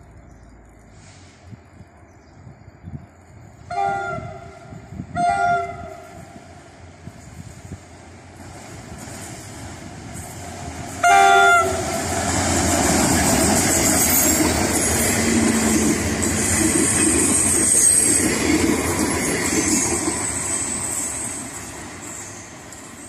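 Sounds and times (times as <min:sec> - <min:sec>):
train wheels rumbling on rails: 0:00.8 - 0:23.0
diesel locomotive horn blast: 0:03.6 - 0:06.4, 0:11.0 - 0:12.2.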